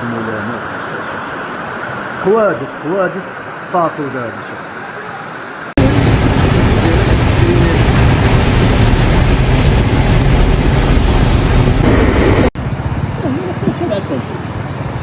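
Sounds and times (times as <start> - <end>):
floodwater rushing: 0.6 - 14.0
wind buffeting microphone: 5.8 - 14.1.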